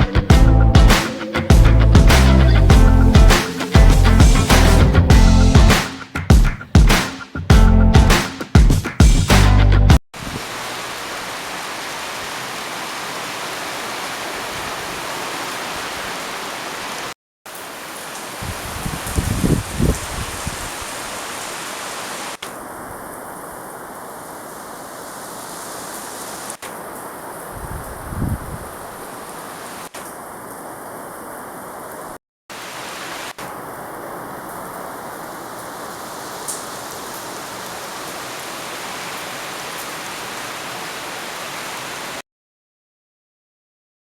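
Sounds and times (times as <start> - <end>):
low thumps: 0.0 - 5.8
heavy rain hiss: 0.0 - 5.9, 10.2 - 42.2.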